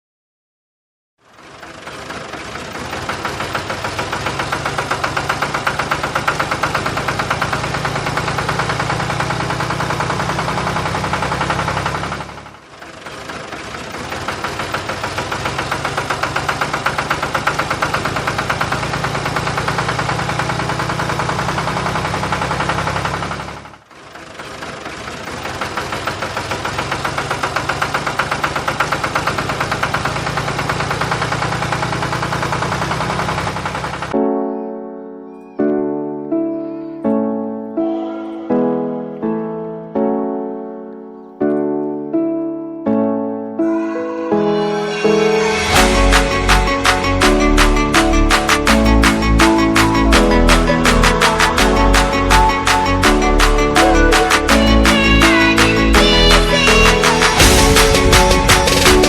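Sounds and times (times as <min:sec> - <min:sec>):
tractor engine chugging: 0:01.2 - 0:34.2, 0:45.5 - 0:59.0.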